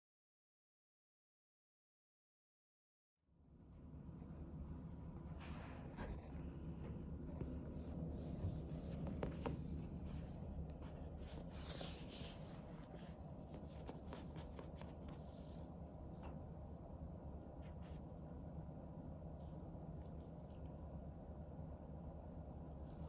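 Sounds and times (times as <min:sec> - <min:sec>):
low room hum: 0:03.3 - 0:23.0
scratching and rustling: 0:05.3 - 0:16.2.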